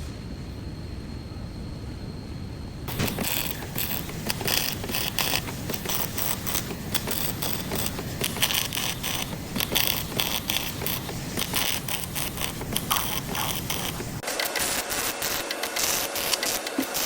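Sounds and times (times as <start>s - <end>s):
hand tools clicking and scraping: 2.9s - 17.0s.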